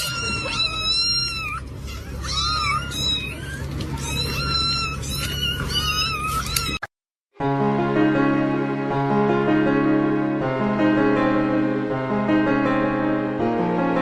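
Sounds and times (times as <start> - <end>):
cat meowing: 0.0 - 6.9.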